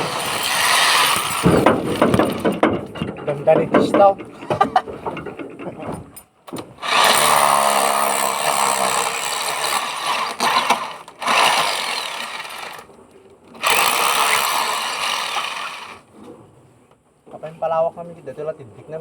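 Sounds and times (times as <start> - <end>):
electric hammer drill running: 0.0 - 2.4, 6.8 - 12.9, 13.6 - 16.0.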